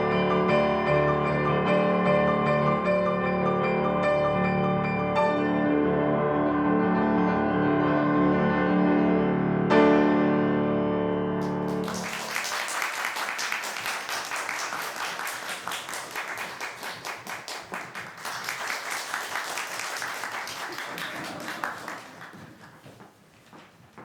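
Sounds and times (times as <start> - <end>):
audience applauding: 11.4 - 23.0.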